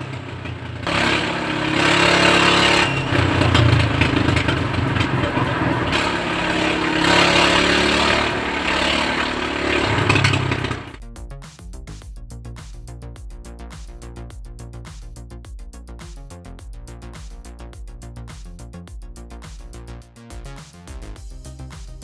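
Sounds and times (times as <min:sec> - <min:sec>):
vehicle engine revving under load: 0:00.0 - 0:11.0.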